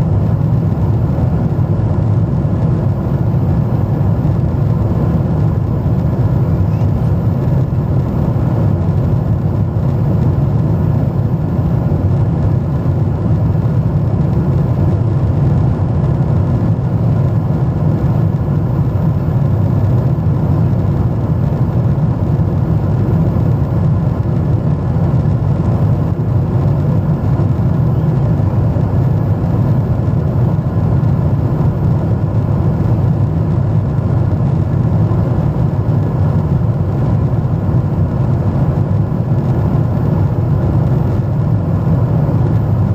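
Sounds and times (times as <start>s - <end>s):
airliner cabin jet engine rumble: 0.0s - 42.9s.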